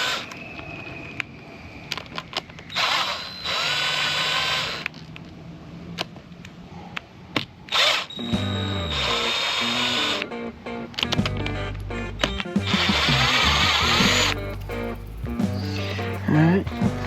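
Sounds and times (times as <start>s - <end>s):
cordless drill whirring: 0.0s - 0.4s, 2.6s - 5.0s, 7.7s - 10.3s, 12.6s - 14.4s.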